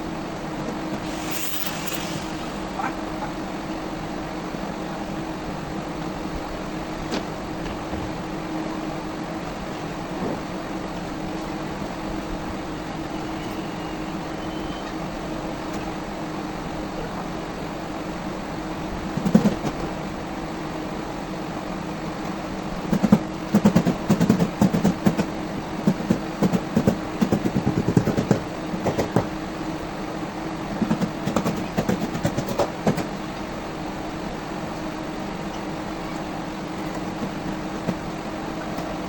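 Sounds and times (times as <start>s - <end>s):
machine hum: 0.0s - 39.0s
rapid knocking: 22.9s - 29.3s, 30.8s - 33.1s.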